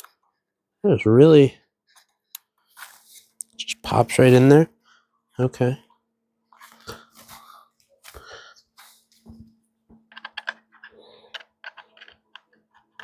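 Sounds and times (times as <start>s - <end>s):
plastic parts clicking: 10.0s - 13.0s.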